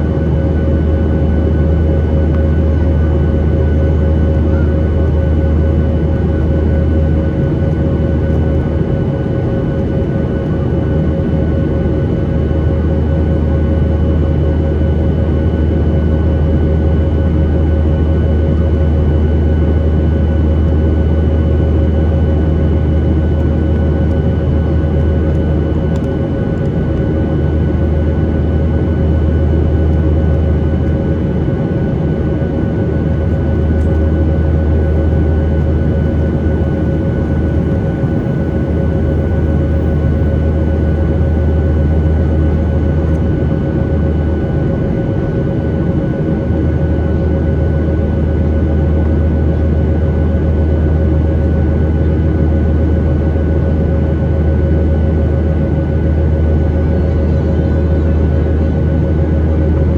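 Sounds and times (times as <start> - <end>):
jet cabin rumble: 0.0 - 59.9
thin steady whines: 0.0 - 59.9
faint steady whine: 20.4 - 45.2.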